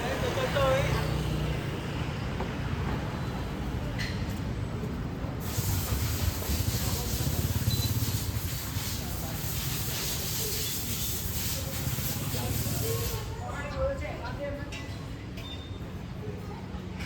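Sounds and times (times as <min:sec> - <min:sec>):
city traffic rumble: 0:00.0 - 0:17.0
steady hiss: 0:05.4 - 0:13.3.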